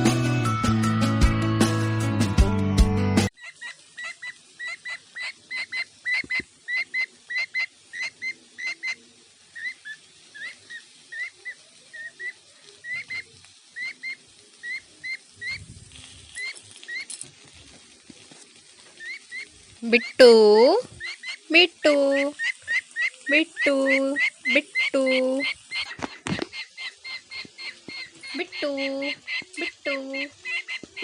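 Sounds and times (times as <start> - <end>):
bird chirping: 19.0 - 31.0.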